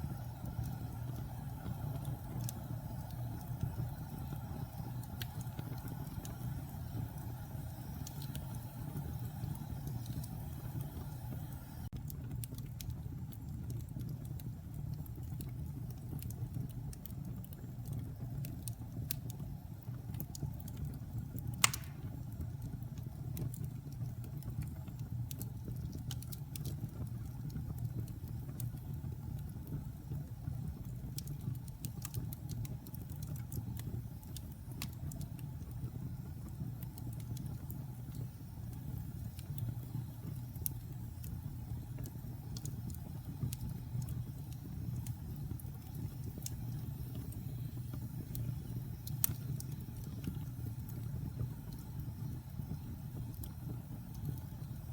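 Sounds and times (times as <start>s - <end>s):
fire crackles: 0.0s - 54.9s
log fire burning: 0.0s - 54.9s
loud fire pop: 21.6s - 22.2s.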